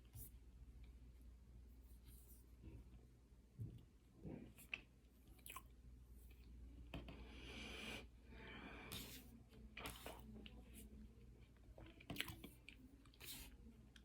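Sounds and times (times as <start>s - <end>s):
chewing crunches: 11.8s - 13.3s.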